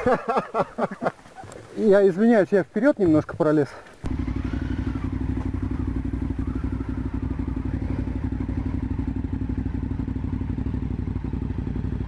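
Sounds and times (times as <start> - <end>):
motorcycle engine at low revs: 3.9 - 12.0.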